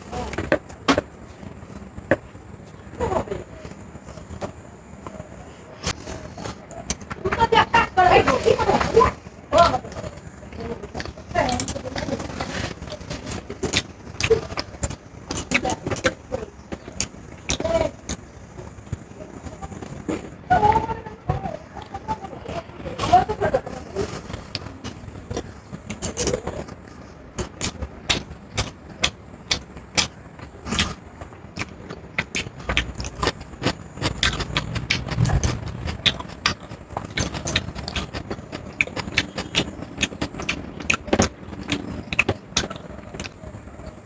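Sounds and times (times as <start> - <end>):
chewing and smacking: 24.3 - 44.0
low rumble: 32.6 - 37.7.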